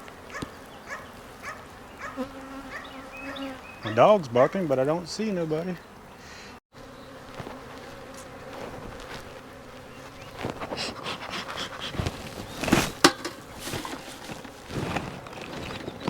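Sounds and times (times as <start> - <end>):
honeybees buzzing: 0.0 - 16.0
knocks and scrapes: 11.7 - 16.0.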